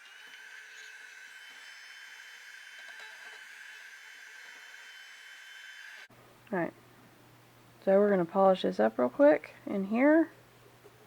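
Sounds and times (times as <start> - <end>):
small vacuum cleaner whining: 0.0 - 6.1.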